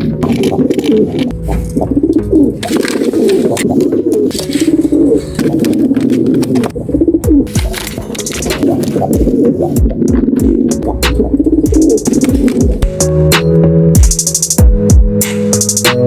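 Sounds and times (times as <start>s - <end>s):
pigeons cooing: 0.0s - 12.8s.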